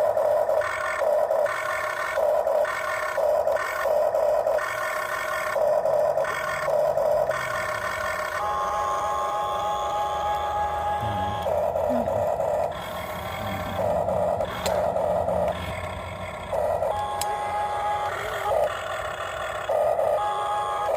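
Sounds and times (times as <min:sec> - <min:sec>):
toy motor whirring: 0:00.0 - 0:20.9.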